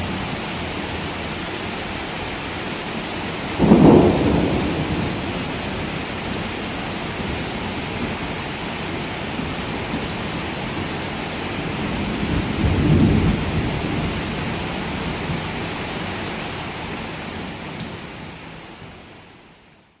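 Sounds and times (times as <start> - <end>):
heavy rain pouring: 0.0 - 19.9
low roll of thunder: 3.6 - 7.4, 11.6 - 15.3.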